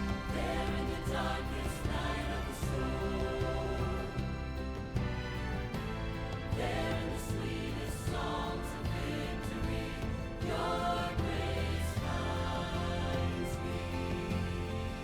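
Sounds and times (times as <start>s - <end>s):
choir singing a hymn: 0.0s - 15.0s
instrumental accompaniment: 0.0s - 15.0s.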